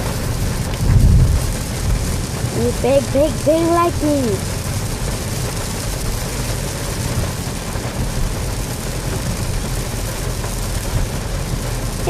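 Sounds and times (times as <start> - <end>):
low thunder rumble: 0.0 - 3.4
heavy rain pouring: 0.0 - 12.0.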